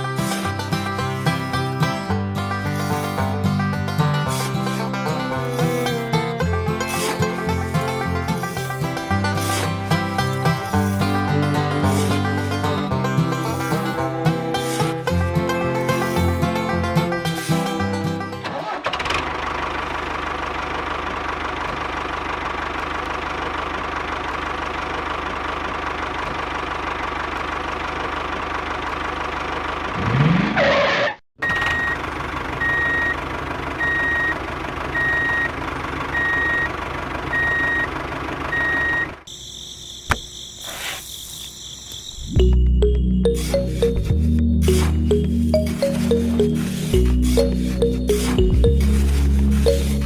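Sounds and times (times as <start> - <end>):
vehicle engine running: 0.0 - 39.3, 41.6 - 50.0
reversing alarm beeping: 31.4 - 32.0, 32.6 - 33.2, 33.8 - 34.4, 35.0 - 36.7, 37.3 - 37.9, 38.5 - 50.0.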